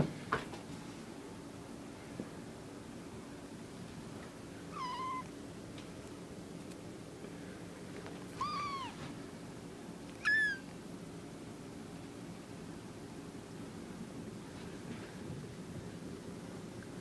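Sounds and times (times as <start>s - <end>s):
kittens meowing: 4.7s - 5.3s, 8.3s - 9.0s, 10.2s - 10.7s.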